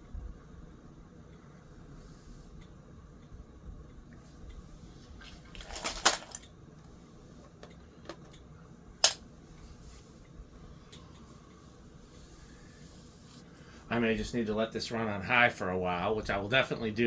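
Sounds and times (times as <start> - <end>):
metal fan parts clinking: 9.0 - 9.2.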